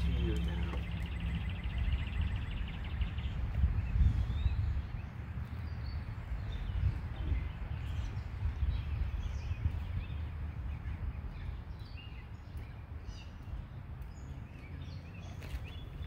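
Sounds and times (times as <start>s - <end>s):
low outdoor rumble: 0.0s - 11.8s.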